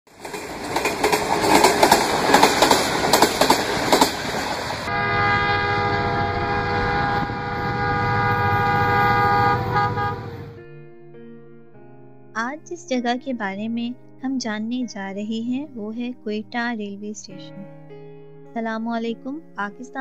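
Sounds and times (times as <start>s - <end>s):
train wheels clattering on rails: 0.1s - 4.9s
train horn blast: 4.8s - 10.6s.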